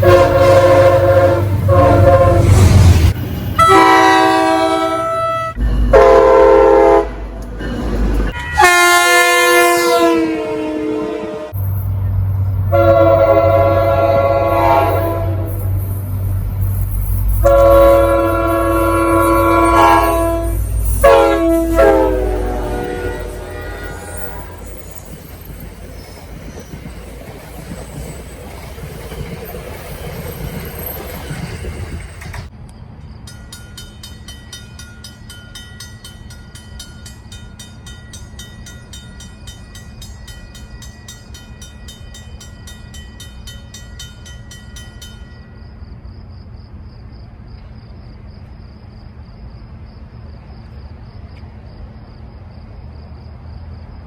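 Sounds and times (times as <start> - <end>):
train horn blasts: 0.0 - 7.3, 8.3 - 11.6, 12.7 - 15.8, 17.4 - 24.9
locomotive rumble: 0.0 - 54.0
crickets chirping: 11.6 - 54.0.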